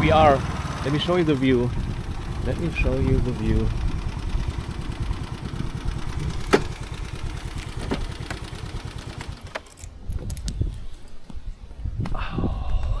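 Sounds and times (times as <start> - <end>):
motorbike engine running: 0.0 - 9.9.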